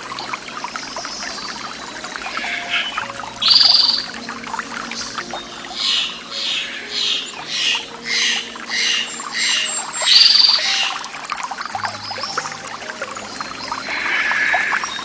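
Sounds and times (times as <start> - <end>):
running water: 0.0 - 15.0
bird calling: 2.2 - 15.0.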